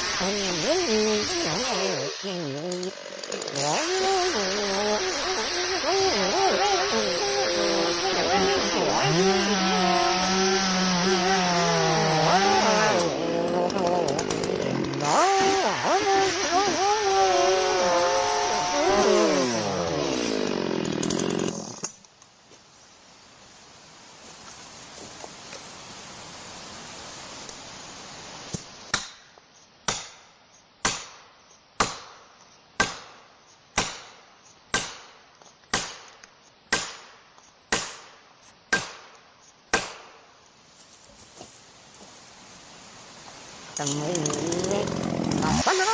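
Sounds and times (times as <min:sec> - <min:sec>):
chainsaw cutting: 0:00.0 - 0:22.0, 0:43.8 - 0:45.9
steady hiss: 0:22.0 - 0:31.8, 0:38.3 - 0:44.5
wood being chopped: 0:28.9 - 0:29.2, 0:29.9 - 0:31.2, 0:31.8 - 0:33.2, 0:33.8 - 0:40.2.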